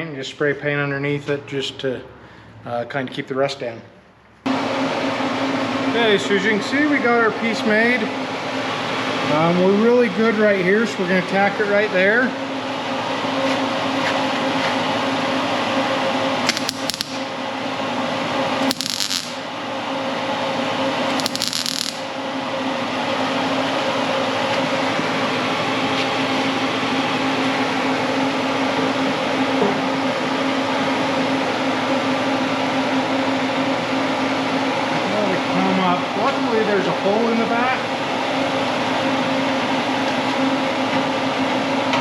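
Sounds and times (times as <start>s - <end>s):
fan-like hum: 4.5s - 42.0s
welder crackle: 16.5s - 17.3s, 18.6s - 19.4s, 21.1s - 22.2s.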